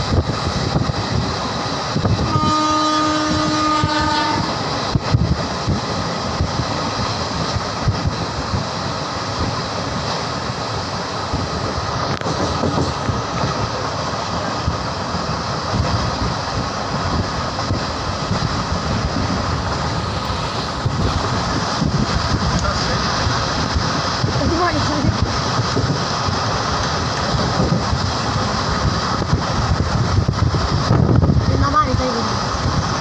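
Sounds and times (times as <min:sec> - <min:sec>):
passenger train rumbling: 0:00.0 - 0:33.0
train horn: 0:02.2 - 0:04.6
rush of air: 0:04.6 - 0:31.5.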